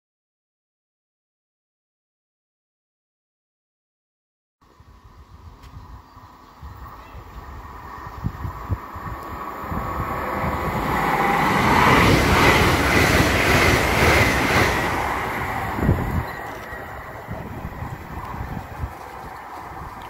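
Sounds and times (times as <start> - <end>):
train passing at speed: 4.7 - 20.0.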